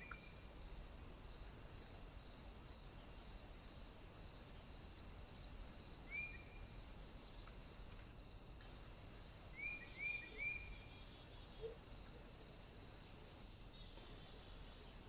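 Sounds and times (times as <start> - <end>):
bird whistled call notes: 9.6 - 10.8.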